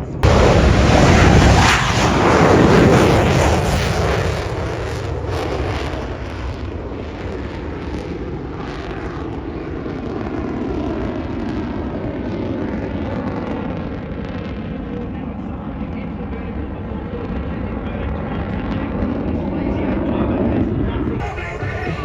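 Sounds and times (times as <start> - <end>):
airplane flying by: 0.0 - 13.1, 18.0 - 22.0.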